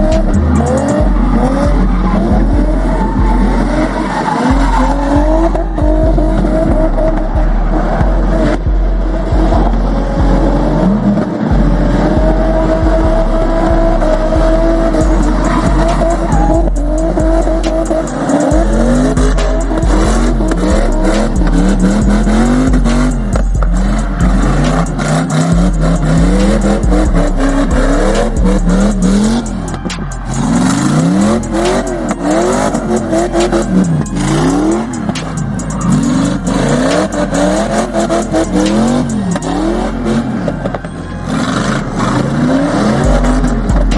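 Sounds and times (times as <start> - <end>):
car engine revving: 0.0 - 43.9
loud music with heavy bass: 0.0 - 43.9
tyres squealing: 14.8 - 43.9.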